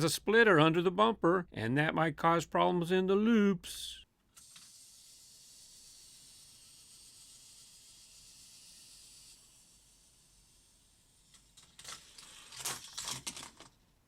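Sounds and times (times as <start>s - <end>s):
toy car rolling on plastic track: 4.4s - 13.7s.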